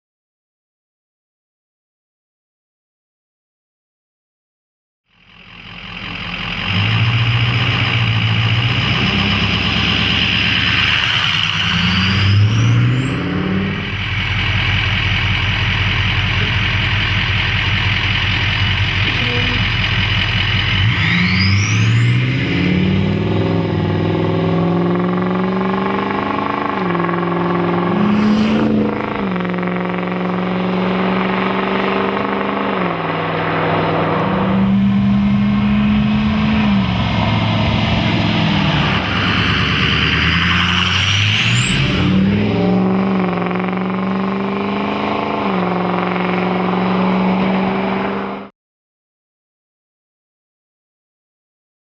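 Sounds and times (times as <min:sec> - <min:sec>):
diesel truck engine revving: 0:05.3 - 0:48.5
turbo whistle: 0:27.9 - 0:32.0.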